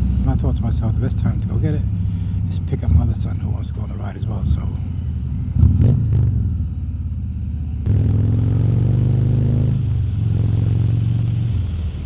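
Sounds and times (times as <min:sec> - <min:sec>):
motorcycle engine at speed: 0:04.8 - 0:12.0.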